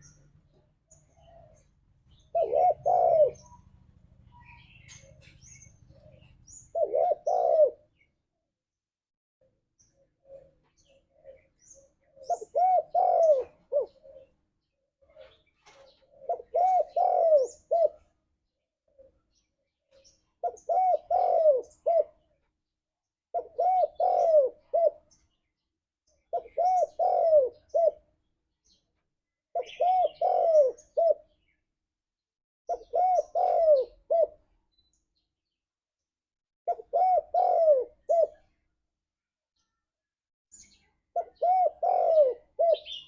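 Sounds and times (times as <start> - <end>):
small birds chirping: 0.0 - 8.5, 9.4 - 31.9, 32.7 - 35.9, 36.7 - 43.0
dove cooing: 1.1 - 3.6, 4.5 - 8.0, 9.9 - 14.4, 15.0 - 18.2, 20.4 - 22.3, 23.3 - 25.1, 26.3 - 28.1, 29.5 - 31.4, 32.7 - 34.5, 36.7 - 38.6, 41.1 - 43.0.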